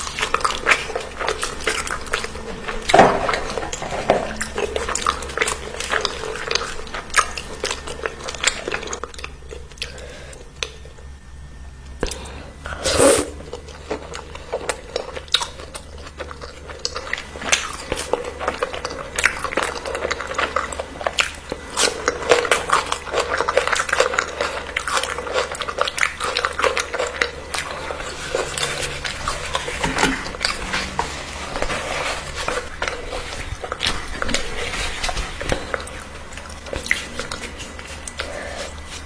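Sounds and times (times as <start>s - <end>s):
person chewing food: 0.0s - 39.0s.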